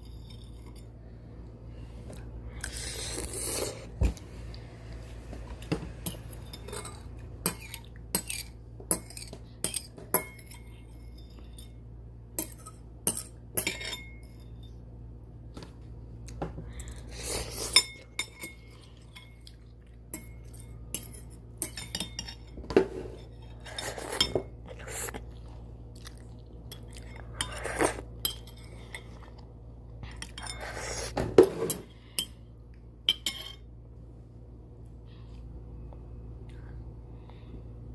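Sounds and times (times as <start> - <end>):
utensils clinking against bowl: 6.0 - 11.8, 12.4 - 14.8, 17.7 - 24.8, 26.7 - 29.3, 33.0 - 33.7.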